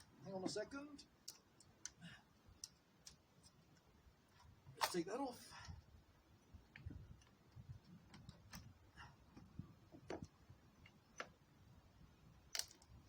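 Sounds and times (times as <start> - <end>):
small parts clicking and tapping: 1.2 - 5.0, 12.5 - 13.0.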